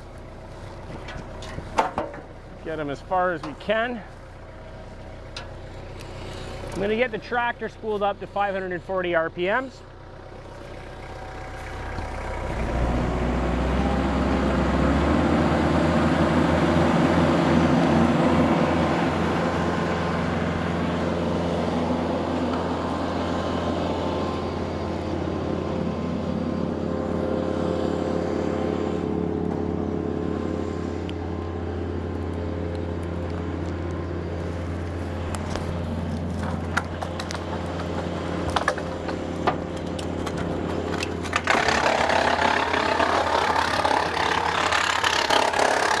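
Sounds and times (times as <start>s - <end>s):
tractor engine running: 0.0s - 46.0s
wood chipper flywheel spinning: 9.8s - 46.0s.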